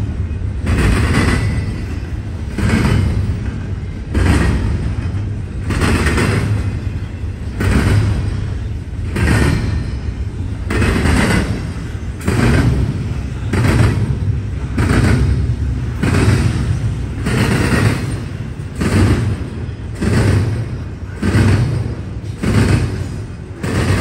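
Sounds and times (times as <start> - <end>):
train low rumble: 0.0 - 24.0
train wheels clattering on rails: 0.0 - 24.0.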